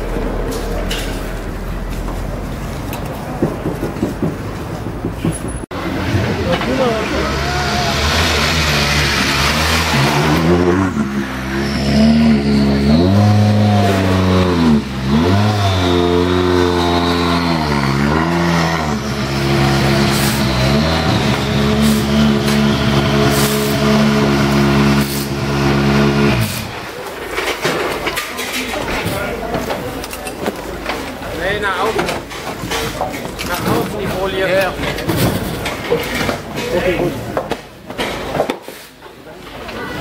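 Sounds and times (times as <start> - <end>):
rally car engine at high revs: 5.8 - 27.0.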